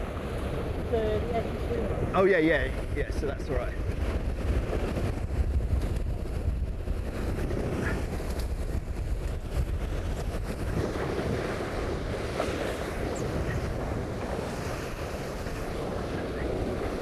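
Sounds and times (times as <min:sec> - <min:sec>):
water splashing past hulls: 0:00.0 - 0:17.0
wind buffeting microphone: 0:00.0 - 0:17.0.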